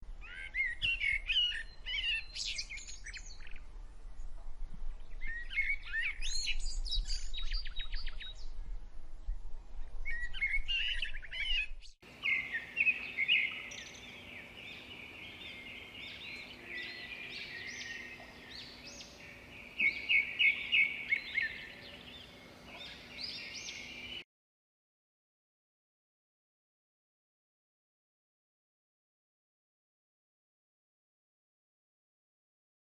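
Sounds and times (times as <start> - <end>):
small birds chirping: 0.2 - 24.2.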